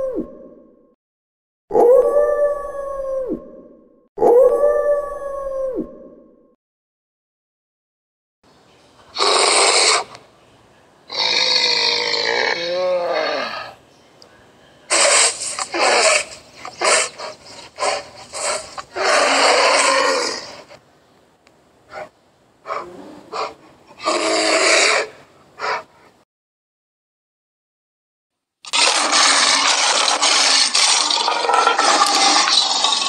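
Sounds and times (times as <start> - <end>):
bear roaring and growling: 9.2 - 10.2, 11.1 - 13.8, 14.9 - 20.8, 21.9 - 25.9, 28.7 - 33.0.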